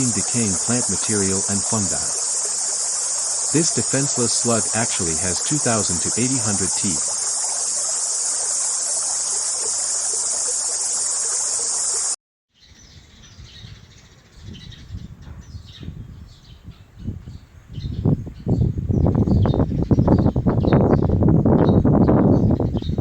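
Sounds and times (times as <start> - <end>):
high-pitched insect chorus: 0.0 - 12.2.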